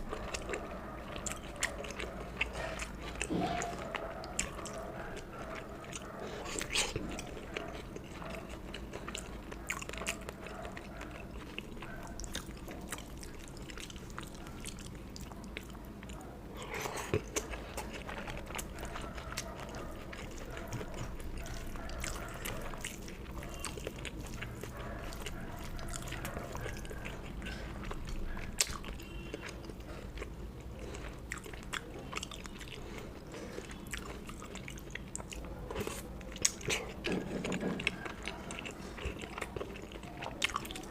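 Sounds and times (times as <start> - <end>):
person chewing and eating: 0.0 - 40.9
mouth clicks and smacks: 16.6 - 40.9.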